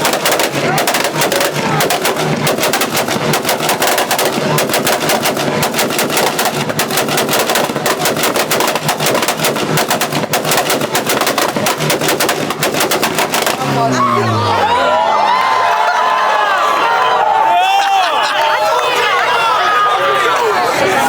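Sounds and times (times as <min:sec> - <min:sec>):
exhaust pops and bangs: 0:00.0 - 0:13.8.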